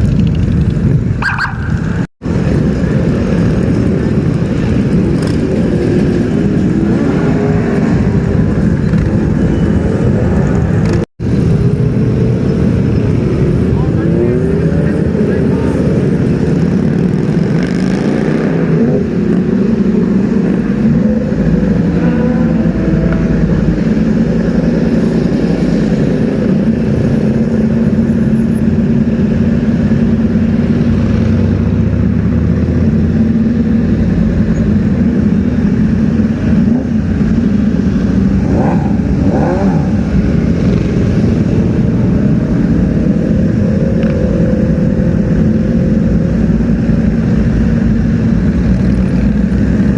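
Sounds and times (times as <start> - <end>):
motorcycle engines rumbling: 0.0 - 49.9
road traffic: 0.0 - 49.9
engine revving: 10.2 - 49.9.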